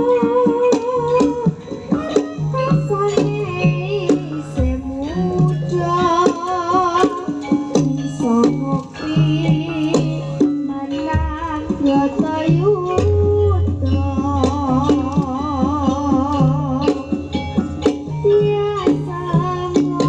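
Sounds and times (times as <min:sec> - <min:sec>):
drum strikes: 0:00.0 - 0:20.0
woman singing ornamented notes: 0:00.0 - 0:20.0
low bass note: 0:13.1 - 0:16.8.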